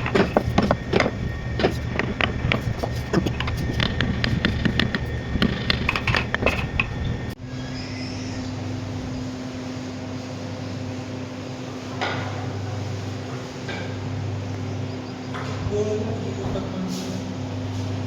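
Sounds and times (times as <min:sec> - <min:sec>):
carving tools tapping wood: 0:00.0 - 0:07.0
steady low hum: 0:00.0 - 0:18.0.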